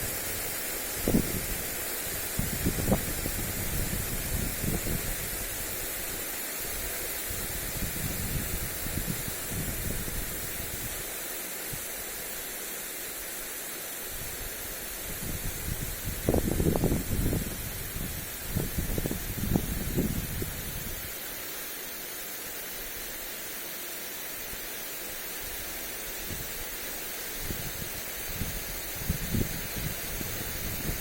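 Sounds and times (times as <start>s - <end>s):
sprinkler spraying water: 0.0s - 31.0s
wind buffeting microphone: 1.0s - 5.6s, 7.3s - 11.0s, 15.1s - 21.0s, 27.4s - 31.0s.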